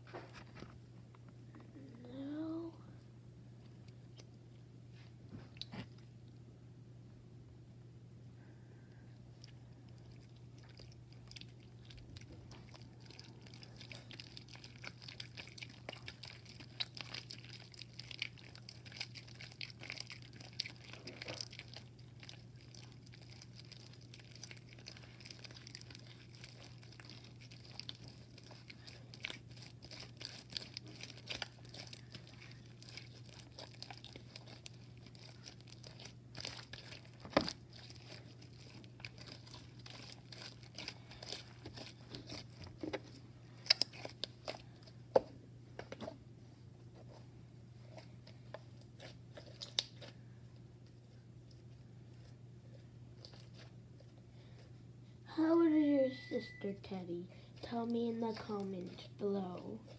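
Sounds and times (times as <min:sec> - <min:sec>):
crinkling handling noise: 0:00.0 - 0:01.7, 0:10.6 - 0:54.8
steady low hum: 0:00.0 - 0:59.9.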